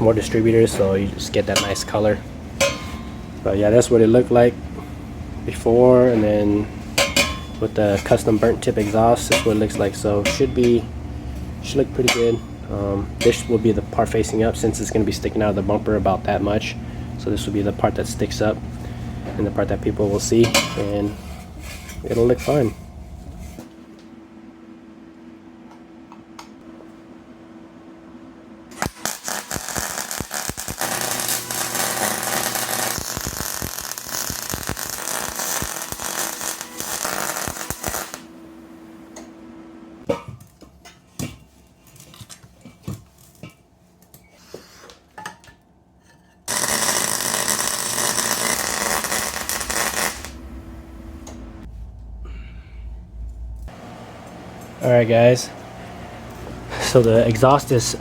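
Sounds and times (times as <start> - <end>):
power tool running on metal: 28.8 - 38.3, 46.5 - 50.4.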